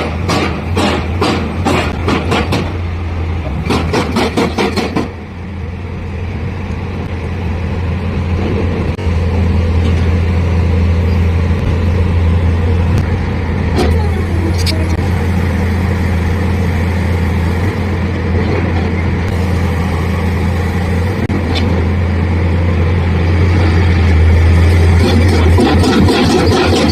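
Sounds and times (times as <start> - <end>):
sharp knocks: 0.0 - 2.8, 3.6 - 5.1
drilling rig engine drone: 0.0 - 26.9.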